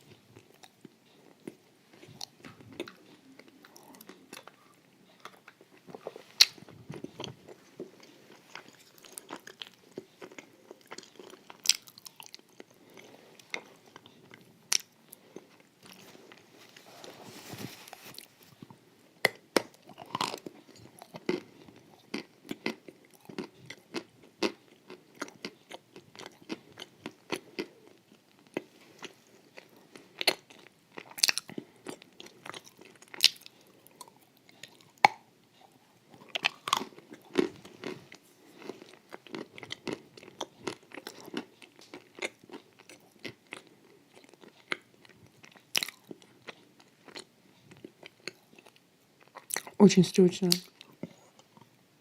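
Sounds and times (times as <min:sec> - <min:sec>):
person chewing crunchy food: 0:00.0 - 0:49.8.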